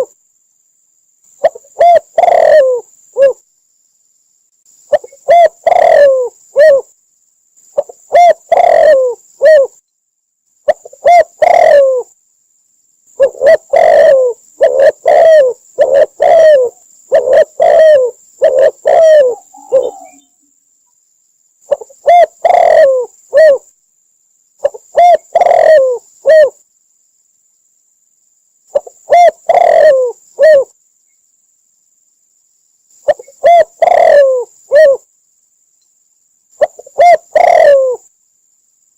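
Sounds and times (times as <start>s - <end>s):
dove cooing: 1.4s - 3.4s, 4.9s - 6.9s, 7.8s - 9.8s, 10.7s - 12.1s, 13.2s - 20.4s, 21.7s - 23.7s, 24.6s - 26.6s, 28.7s - 30.8s, 33.0s - 35.1s, 36.6s - 38.1s.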